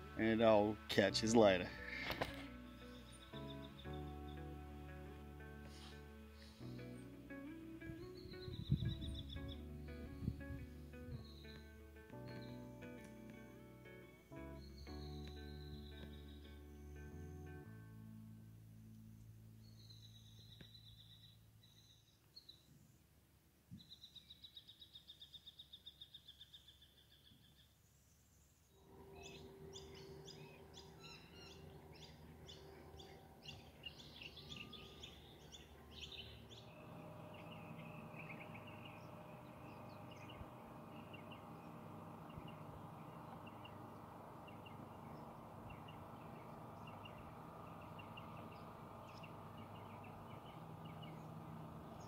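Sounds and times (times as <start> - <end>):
bird chirps: 8.0 - 10.1, 19.6 - 22.8, 23.7 - 52.0
faint steady hum: 27.8 - 52.0
bird rapid high trill: 29.0 - 52.0.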